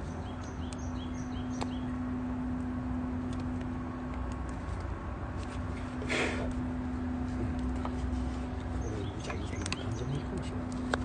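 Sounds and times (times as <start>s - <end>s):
small bird chirping: 0.0s - 2.2s, 8.7s - 10.4s
steady low hum: 0.0s - 11.0s.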